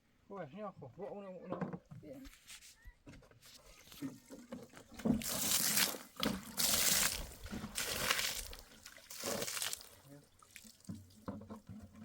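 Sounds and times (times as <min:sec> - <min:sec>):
water pouring and splashing: 0:04.0 - 0:12.0.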